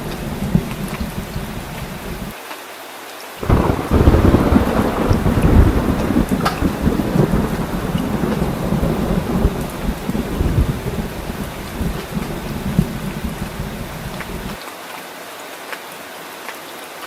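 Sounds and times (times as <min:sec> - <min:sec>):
low rumble of thunder: 0:00.0 - 0:02.3, 0:03.4 - 0:14.6
heavy rain: 0:00.0 - 0:17.0.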